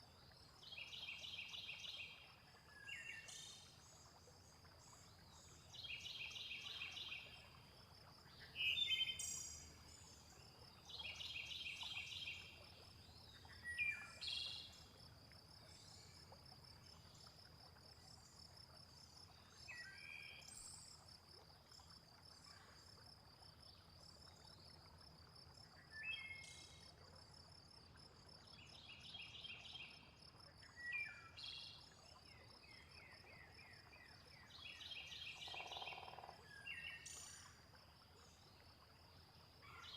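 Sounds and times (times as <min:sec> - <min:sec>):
insect trill: 0:35.4 - 0:36.4.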